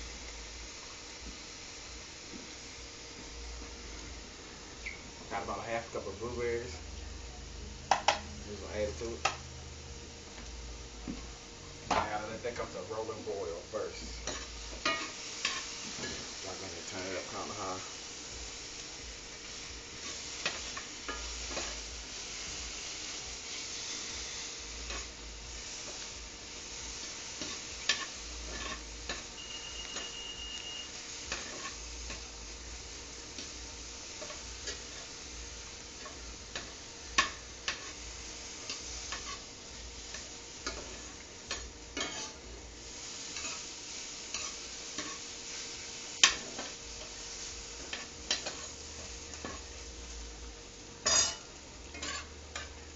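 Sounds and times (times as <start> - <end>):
food sizzling in a pan: 0.0 - 52.9
short steady high tone: 29.4 - 30.9.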